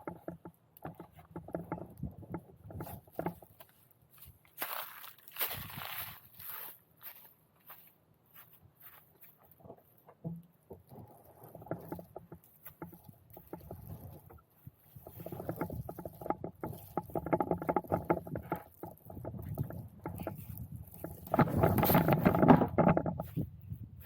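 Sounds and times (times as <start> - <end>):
knocks and rubbing on kayak hull: 0.0 - 3.7, 9.6 - 23.6.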